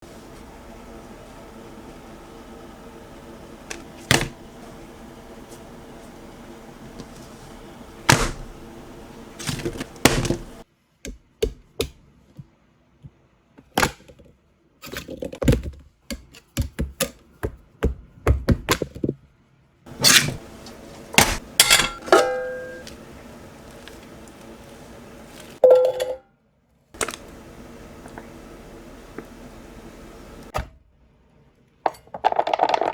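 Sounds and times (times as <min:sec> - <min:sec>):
cookware knocks and clatters: 0:19.9 - 0:23.1
metallic ring of pot: 0:21.4 - 0:23.0.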